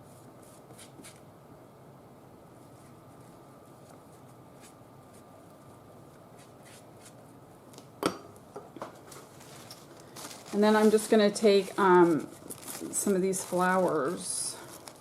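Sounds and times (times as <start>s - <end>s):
paper rustling: 9.0s - 15.0s.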